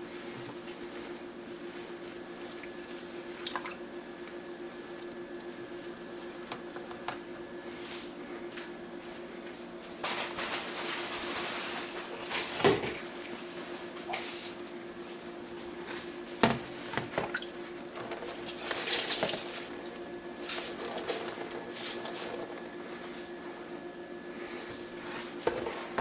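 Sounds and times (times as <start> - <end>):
wet towel rubbing and splashing: 17.3 - 22.6.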